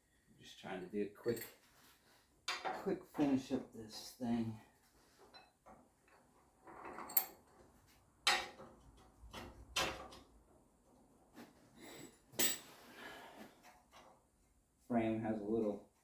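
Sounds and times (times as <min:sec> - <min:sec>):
metal tools knocking and clanking: 0:02.5 - 0:03.3, 0:08.3 - 0:10.2, 0:12.4 - 0:12.7.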